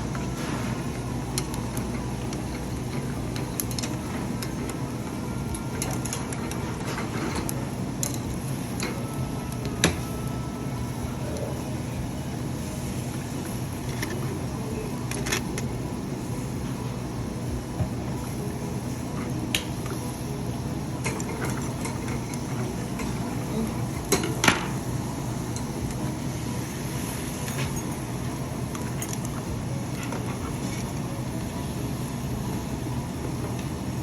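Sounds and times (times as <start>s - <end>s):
restaurant background rumble: 0.0s - 34.0s.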